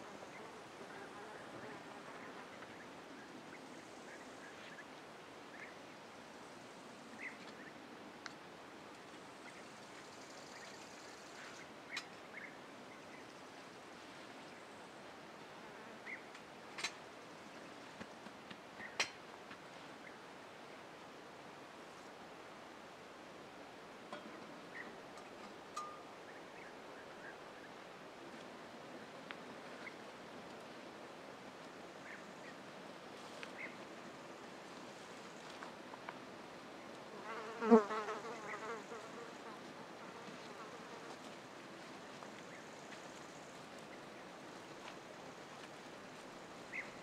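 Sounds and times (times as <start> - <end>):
steady soft hiss: 0.0 - 47.0.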